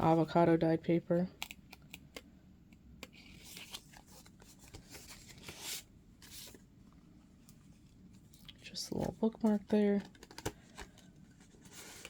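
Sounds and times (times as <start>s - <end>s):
paper pages rustling: 3.1s - 6.6s.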